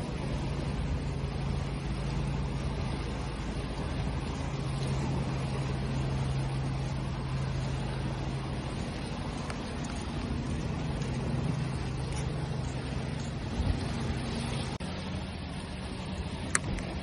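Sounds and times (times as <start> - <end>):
low mechanical hum: 0.0 - 17.0
ocean waves washing: 0.0 - 17.0.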